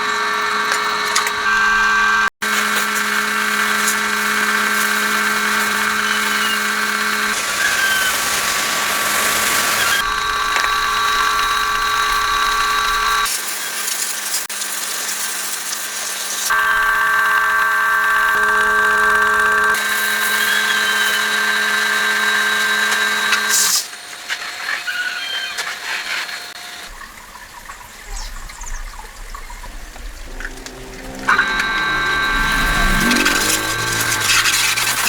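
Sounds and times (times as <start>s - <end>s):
workshop machinery humming and whining: 0.0s - 13.3s, 16.5s - 23.8s, 29.9s - 35.0s.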